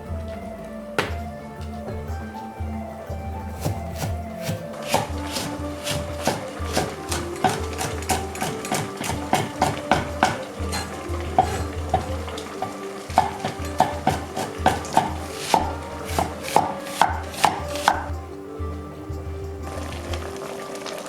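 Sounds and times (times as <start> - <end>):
knife chopping on a cutting board: 1.0 - 1.3, 3.6 - 12.1, 13.2 - 18.0.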